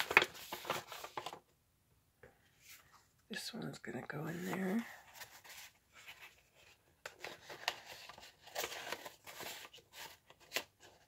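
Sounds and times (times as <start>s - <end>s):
paper rustling: 0.0s - 1.4s, 4.3s - 11.0s.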